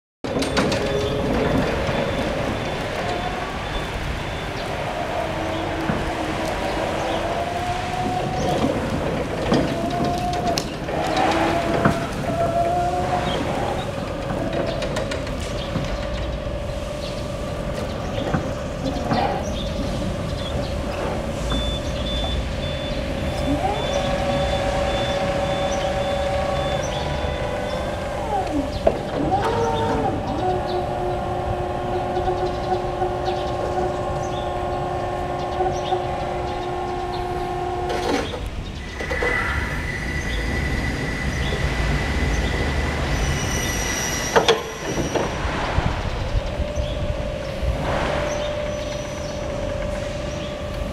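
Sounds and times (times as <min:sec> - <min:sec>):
second rising whine: 0:00.4 - 0:50.9
high warning beeper: 0:21.4 - 0:28.1.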